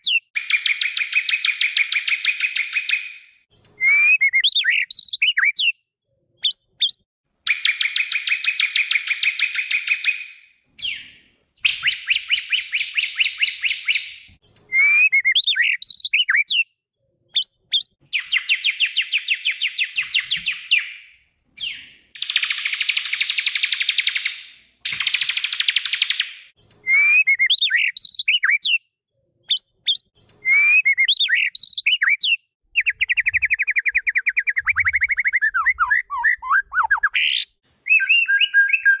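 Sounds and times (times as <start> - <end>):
bird whistled phrases: 3.8 - 5.8, 6.4 - 16.7, 21.6 - 28.9, 29.5 - 39.0.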